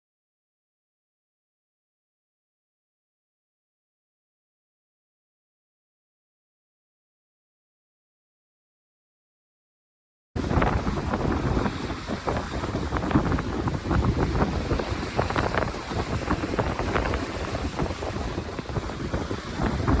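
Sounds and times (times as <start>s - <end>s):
wind buffeting microphone: 10.4s - 20.0s.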